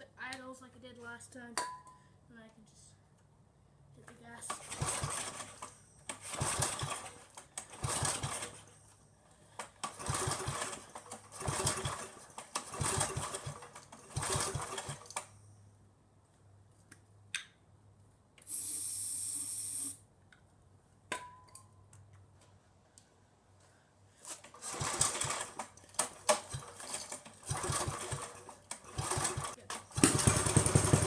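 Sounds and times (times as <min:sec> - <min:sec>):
small engine pull-start rattling: 0:04.5 - 0:08.8, 0:09.5 - 0:15.3, 0:24.2 - 0:31.0.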